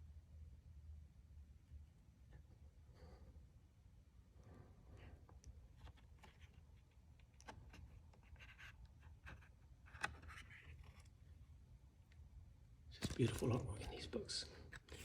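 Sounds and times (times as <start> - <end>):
paper rustling and clicking: 5.7 - 11.2, 13.0 - 14.0, 14.6 - 15.0.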